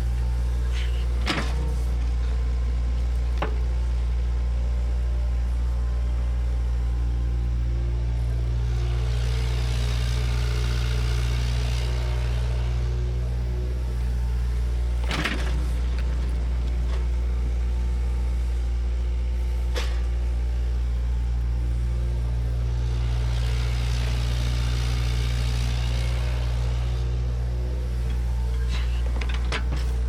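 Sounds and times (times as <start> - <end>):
diesel earthmover running: 0.0 - 30.0.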